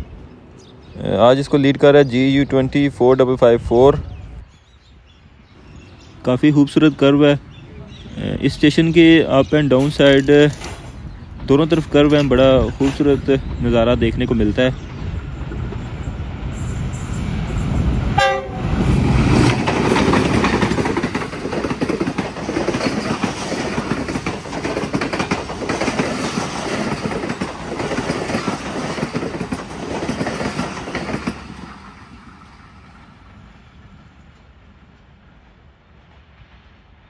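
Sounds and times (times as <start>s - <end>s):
train wheels clattering over rail joints: 9.4s - 32.6s
train horn blast: 18.2s - 18.9s.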